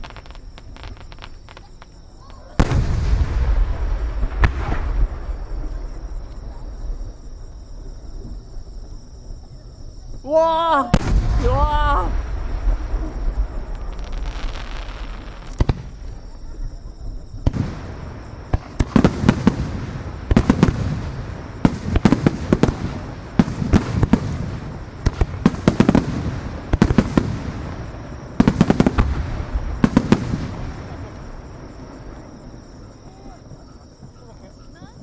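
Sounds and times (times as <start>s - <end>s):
fireworks shell bursts with crackling: 0.0s - 2.0s
fireworks bangs: 0.0s - 34.4s.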